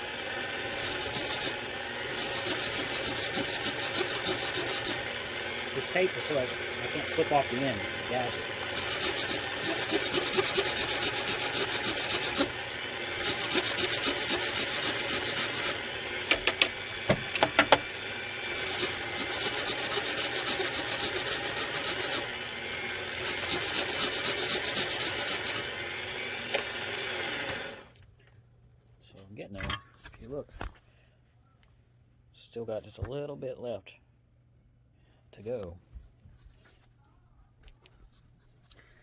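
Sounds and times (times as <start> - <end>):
sandpaper rubbing leather: 0.7 - 1.6, 2.2 - 5.0, 8.7 - 12.5, 13.2 - 15.8, 18.6 - 22.2, 23.3 - 25.6.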